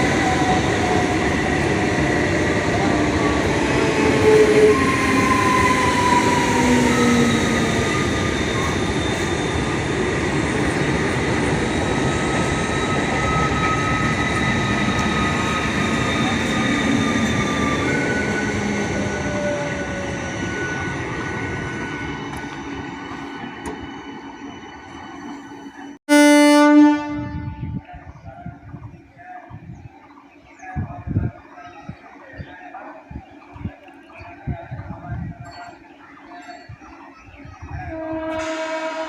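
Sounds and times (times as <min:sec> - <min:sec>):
high metallic squeals: 0:11.3 - 0:26.0.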